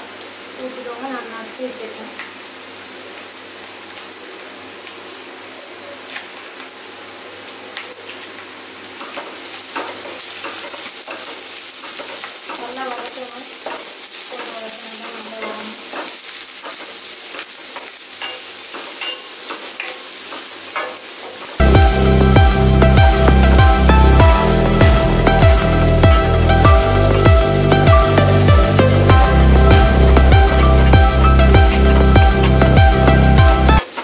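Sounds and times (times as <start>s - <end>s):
onions sizzling in hot oil: 0.0s - 34.0s
wooden spatula scraping a pan: 13.6s - 17.9s.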